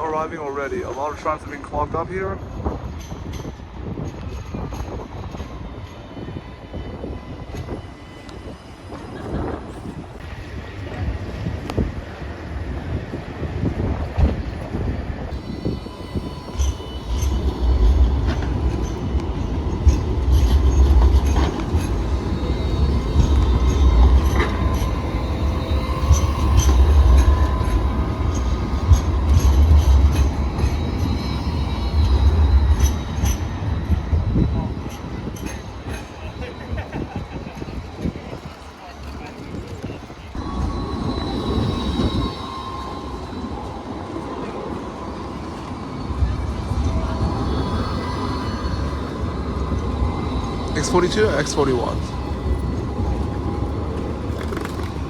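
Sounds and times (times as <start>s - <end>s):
tram rumbling: 0.0s - 55.0s
wheel squeals: 15.3s - 38.2s, 40.3s - 55.0s.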